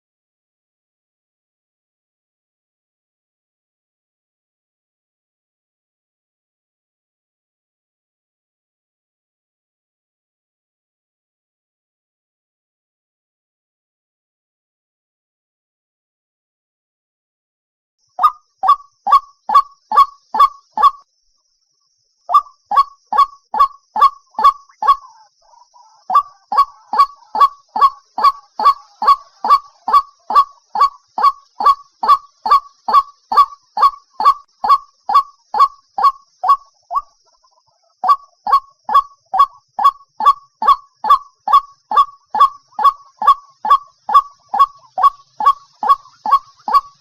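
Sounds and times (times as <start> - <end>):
waterhen calling: 18.2 - 21.0, 22.3 - 47.0.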